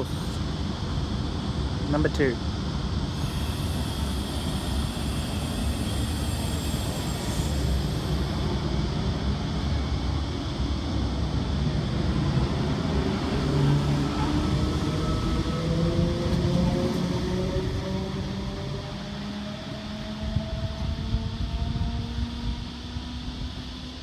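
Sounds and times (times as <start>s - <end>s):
train low rumble: 0.0s - 24.0s
train motors whining: 2.9s - 21.5s.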